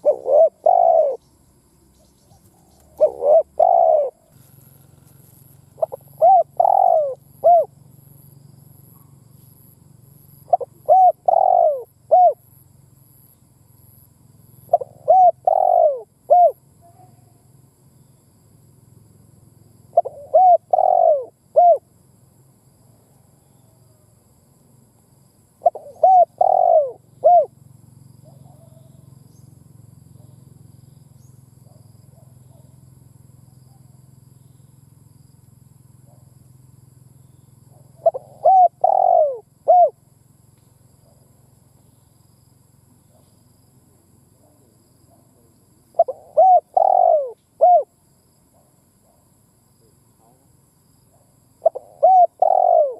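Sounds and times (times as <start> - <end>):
dove cooing: 0.0 - 1.2, 2.2 - 7.8, 10.5 - 12.5, 14.6 - 17.2, 19.9 - 21.9, 25.6 - 27.6, 28.2 - 29.1, 37.7 - 40.0, 44.4 - 47.9, 51.1 - 52.9.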